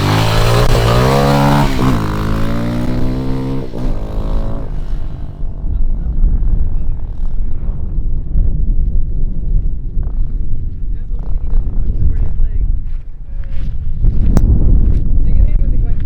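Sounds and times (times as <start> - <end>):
dirt bike engine revving: 0.0 - 7.6
low steady rumble: 0.0 - 12.8.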